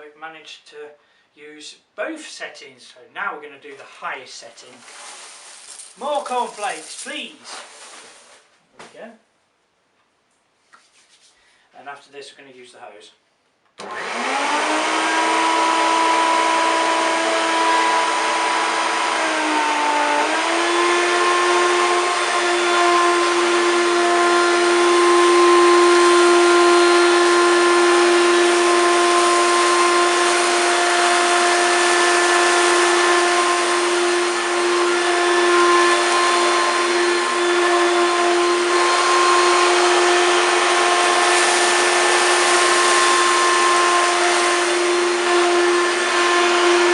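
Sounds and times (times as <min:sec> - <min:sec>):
vacuum cleaner motor whine: 0:13.8 - 0:46.9.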